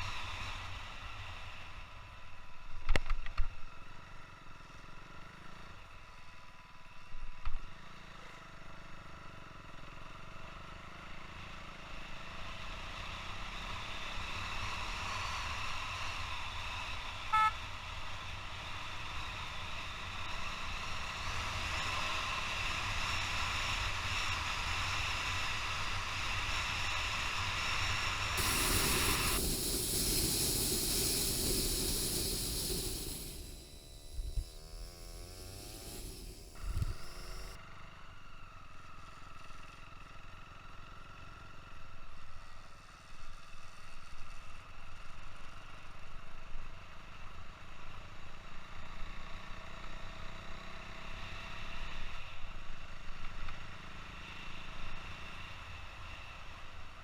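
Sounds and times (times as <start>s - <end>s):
motorcycle engine running: 28.4s - 37.6s
wind hissing on microphone: 28.4s - 37.6s.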